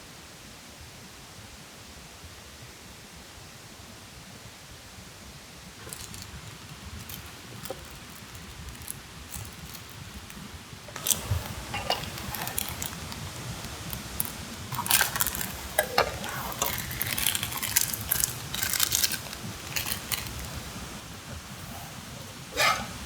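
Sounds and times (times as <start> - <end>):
utensil scraping metal cookware: 5.8 - 23.0.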